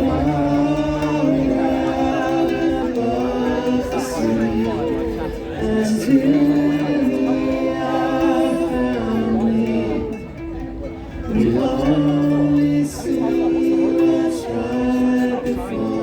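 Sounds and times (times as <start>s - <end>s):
voices singing in harmony: 0.0s - 16.0s.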